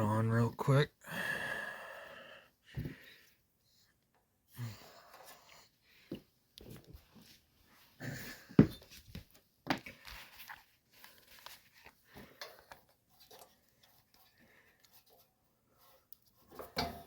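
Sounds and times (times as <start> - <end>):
clicks and rustles of hand work: 8.6 - 17.0.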